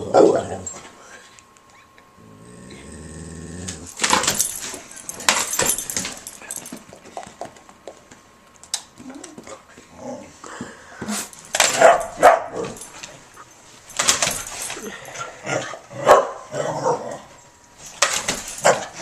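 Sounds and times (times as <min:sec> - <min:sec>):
dog barking and yipping: 0:11.6 - 0:12.9, 0:16.0 - 0:17.0.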